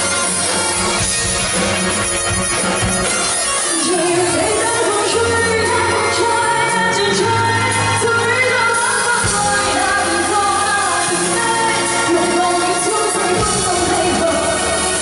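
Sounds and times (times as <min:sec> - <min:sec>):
live band playing pop song: 0:00.0 - 0:15.0
person singing: 0:03.6 - 0:15.0.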